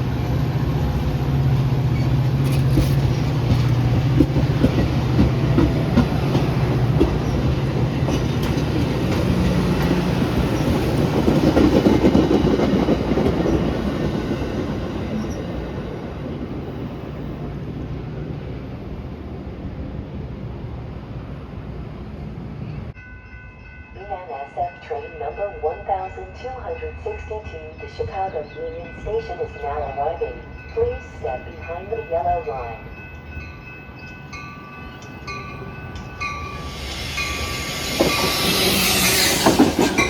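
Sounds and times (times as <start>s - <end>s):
train low hum: 0.0s - 40.0s
train wheels clicking on rails: 0.8s - 16.0s, 34.0s - 40.0s.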